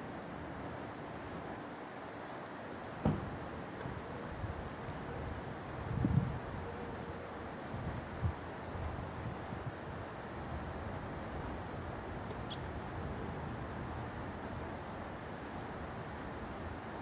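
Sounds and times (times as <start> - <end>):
low wind rumble: 2.9 - 17.0
small bird high calls: 12.4 - 13.0.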